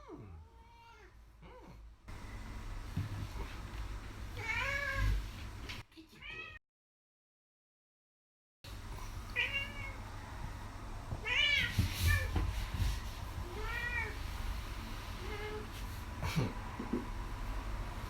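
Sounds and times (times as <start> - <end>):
cat meowing: 4.4 - 5.2, 6.2 - 6.6, 9.3 - 10.0, 11.2 - 12.4, 13.4 - 14.2.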